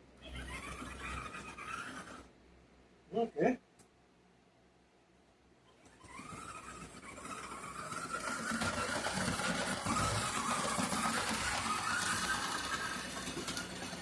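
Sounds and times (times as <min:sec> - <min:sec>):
electric motor whine: 0:06.0 - 0:14.0
wheels clattering on rails: 0:06.1 - 0:14.0.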